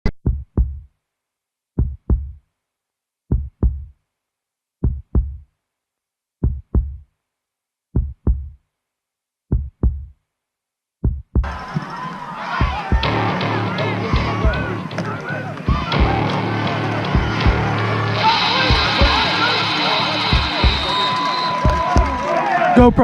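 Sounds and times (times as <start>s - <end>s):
heartbeat thumps: 0.2s - 0.8s, 1.8s - 2.4s, 3.3s - 3.9s, 4.8s - 5.4s, 6.4s - 7.0s, 8.0s - 8.6s, 9.5s - 10.1s, 11.0s - 11.6s, 12.6s - 19.3s, 20.2s - 22.2s.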